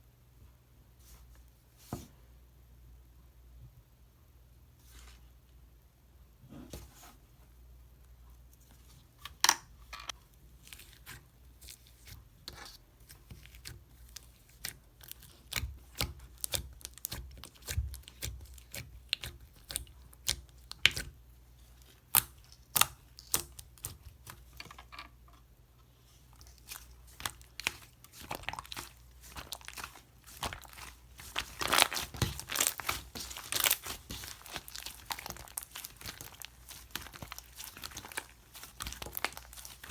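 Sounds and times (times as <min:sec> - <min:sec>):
slime crackling and popping: 0:14.5 - 0:21.1, 0:21.9 - 0:24.3, 0:26.4 - 0:39.9.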